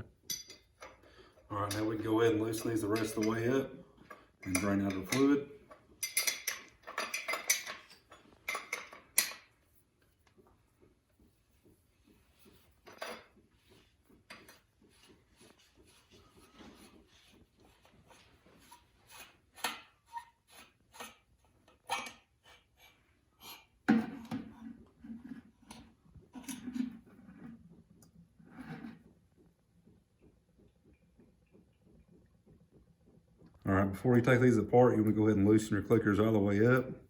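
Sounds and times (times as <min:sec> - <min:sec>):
metal tools clinking and knocking: 0:00.2 - 0:01.0, 0:01.6 - 0:09.6
metal clank and rattle: 0:06.0 - 0:09.6.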